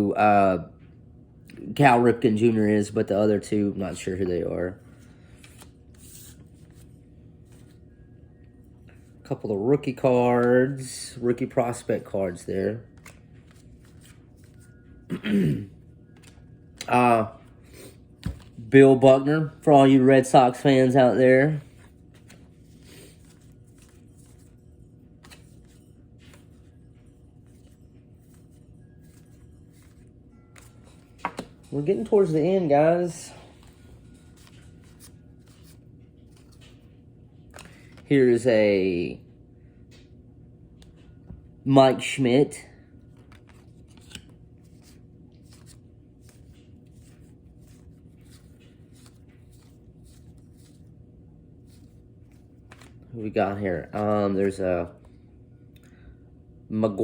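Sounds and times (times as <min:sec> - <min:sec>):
low room hum: 0:00.0 - 0:57.0
cards rustling and clicking: 0:03.9 - 0:07.8, 0:09.9 - 0:14.9, 0:16.1 - 0:18.7, 0:20.2 - 0:38.1, 0:43.1 - 0:50.9, 0:51.6 - 0:55.1
cards sliding over cards: 0:04.9 - 0:07.8, 0:21.6 - 0:24.6, 0:25.2 - 0:26.7, 0:37.5 - 0:38.0, 0:51.6 - 0:53.0.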